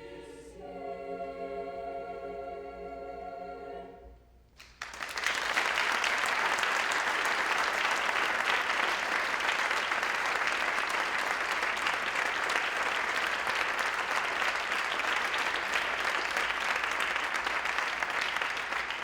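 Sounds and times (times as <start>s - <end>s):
audience applauding: 4.6s - 19.0s.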